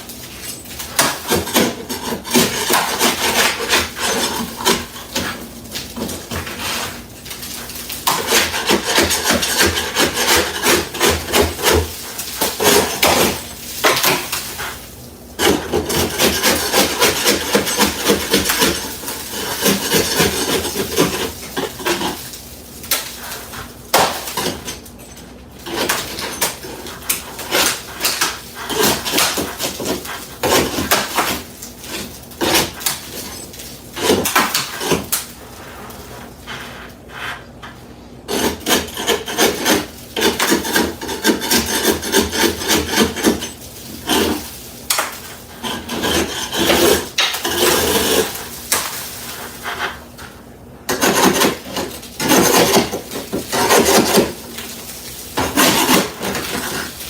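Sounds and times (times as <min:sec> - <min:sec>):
hand tool scraping ceiling: 0:00.0 - 0:57.0.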